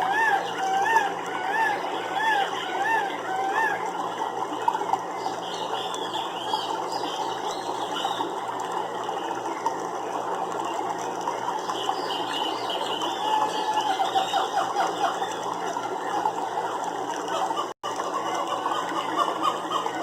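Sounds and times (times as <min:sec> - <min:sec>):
clicking and trilling animal calls: 0:00.0 - 0:08.4.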